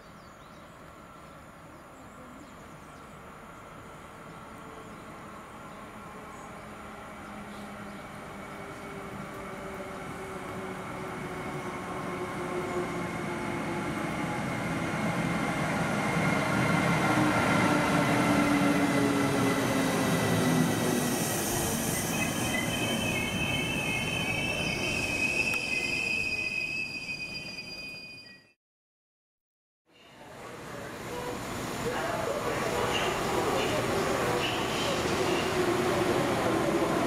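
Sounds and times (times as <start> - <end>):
train running along platform: 0.0 - 28.6, 30.0 - 37.0
wheel and brake squeals: 21.2 - 28.5.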